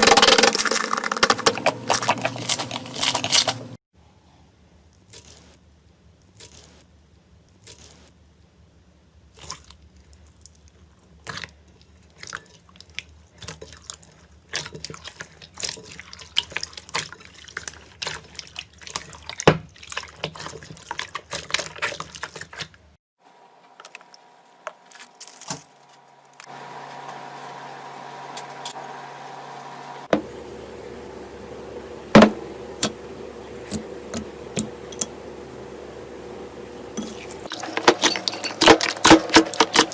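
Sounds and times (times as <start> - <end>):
faint steady hum: 23.2 - 39.9.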